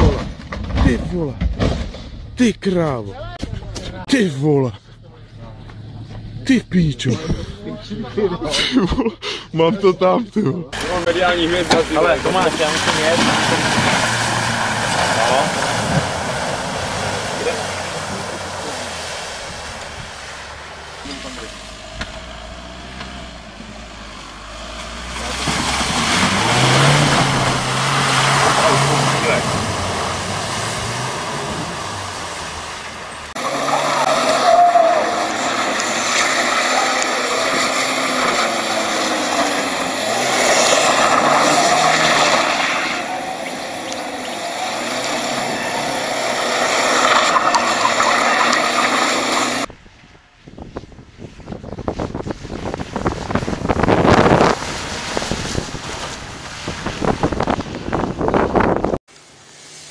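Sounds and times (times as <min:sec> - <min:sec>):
car engines revving hard: 0:10.3 - 0:49.7, 0:52.7 - 0:59.1
car splashing through mud: 0:10.8 - 0:49.7, 0:51.2 - 0:59.9.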